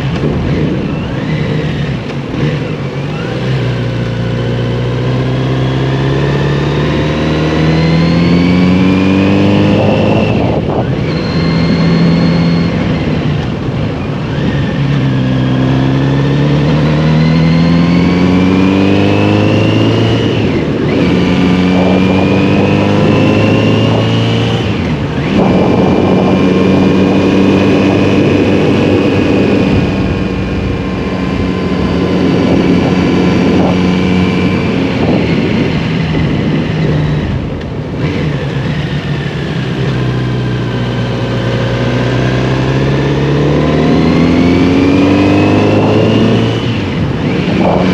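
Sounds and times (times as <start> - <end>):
motorcycle engine changing gears: 0.0 - 47.9.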